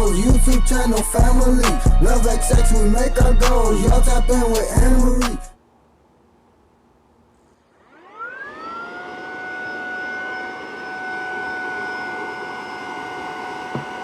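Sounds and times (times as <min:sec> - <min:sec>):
handheld vacuum whine: 0:07.7 - 0:14.0.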